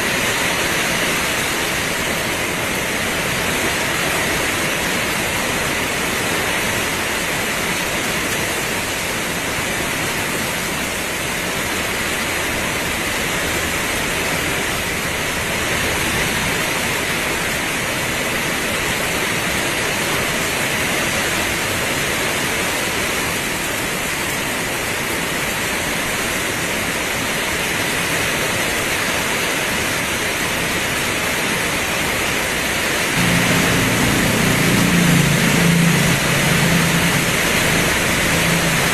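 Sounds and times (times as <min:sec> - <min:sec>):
heavy rain pouring: 0:00.0 - 0:38.9
low vehicle engine hum: 0:33.2 - 0:38.9.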